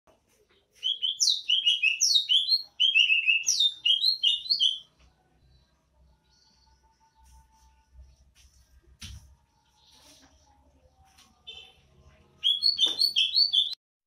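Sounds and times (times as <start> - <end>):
bird singing whistled notes: 0.8 - 4.9, 12.4 - 13.8.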